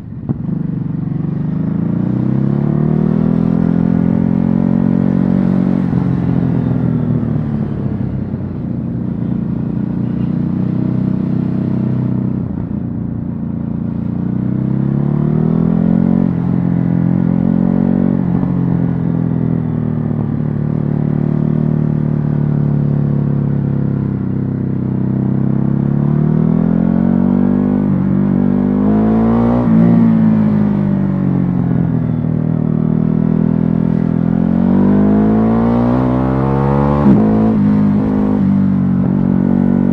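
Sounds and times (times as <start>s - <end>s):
motorcycle engine revving: 14.0s - 39.9s.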